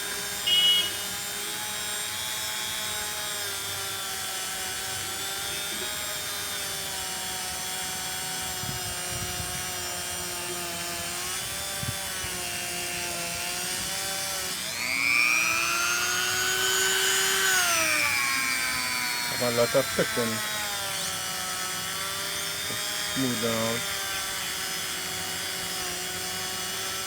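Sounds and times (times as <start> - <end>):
handheld power tool motor: 0.0 - 27.0.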